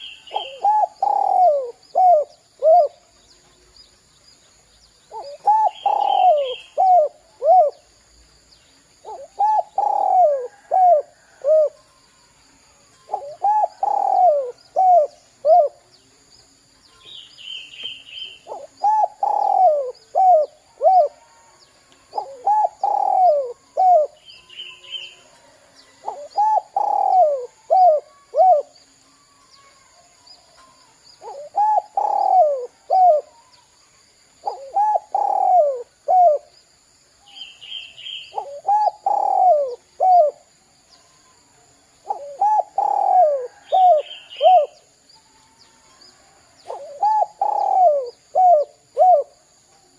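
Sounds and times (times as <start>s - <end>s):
dove cooing: 0.0s - 3.1s, 5.1s - 7.9s, 9.0s - 11.9s, 13.1s - 15.8s, 18.2s - 21.4s, 22.1s - 24.2s, 26.0s - 28.8s, 31.2s - 33.4s, 34.4s - 36.5s, 38.1s - 40.5s, 42.0s - 44.8s, 46.6s - 49.4s.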